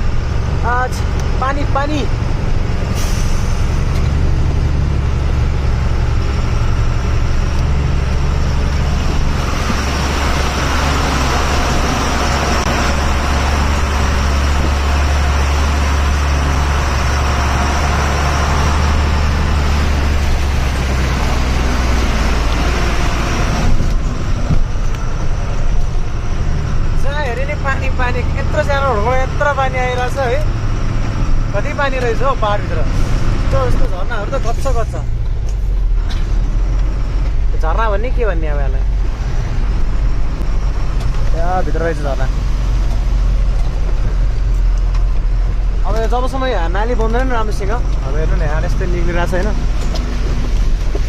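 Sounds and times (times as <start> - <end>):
truck engine running: 0.0 - 51.0.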